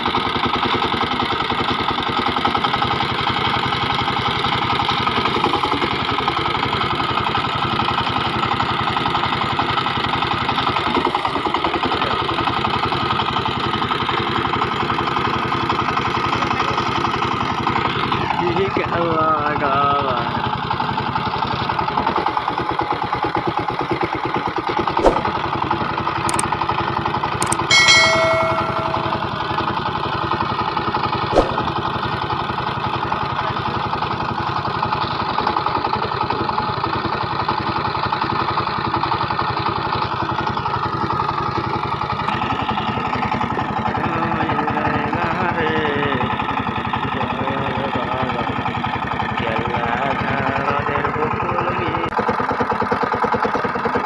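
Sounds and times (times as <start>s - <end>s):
diesel engine chugging: 0.0s - 24.8s, 31.7s - 54.0s
sharp clicks: 27.4s - 27.7s
short high-pitched tone: 27.4s - 29.6s.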